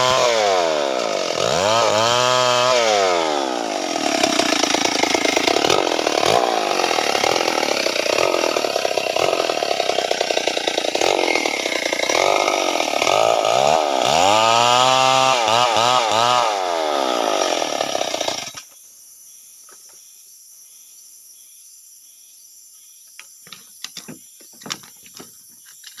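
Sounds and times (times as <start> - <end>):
chainsaw cutting timber: 0.0 - 18.7.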